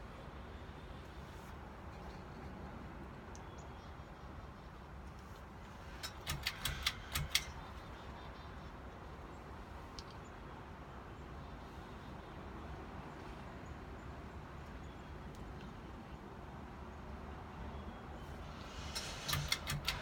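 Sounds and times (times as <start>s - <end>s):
sharp clicks: 6.0s - 7.9s, 18.6s - 20.0s.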